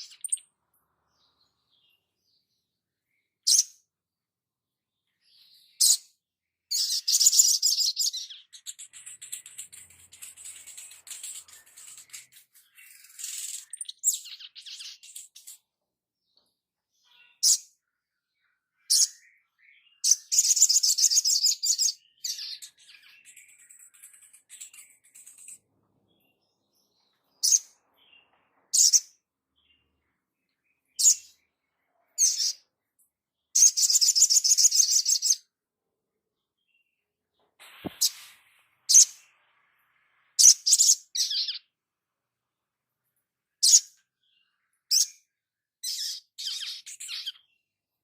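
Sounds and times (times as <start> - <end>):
songbird trilling and calling: 0.0 - 2.5, 3.1 - 3.8, 6.7 - 15.6, 17.0 - 25.6, 26.2 - 32.7, 33.5 - 35.5, 40.4 - 41.7, 43.6 - 47.7.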